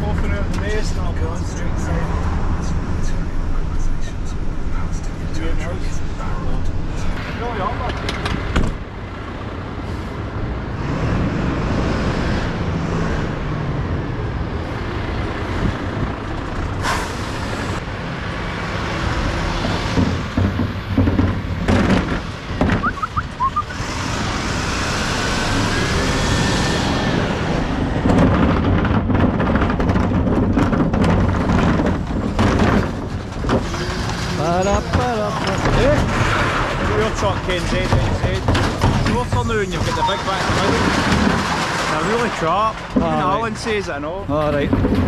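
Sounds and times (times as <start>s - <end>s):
truck engine and road rumble: 0.0s - 45.0s
rising engine whine: 6.6s - 28.1s
cab rattles and clicks: 27.9s - 45.0s.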